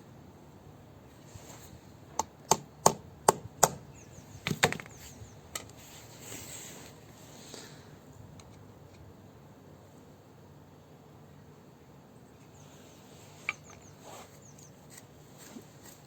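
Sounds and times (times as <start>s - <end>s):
sharp taps on fan hub: 2.2s - 5.0s.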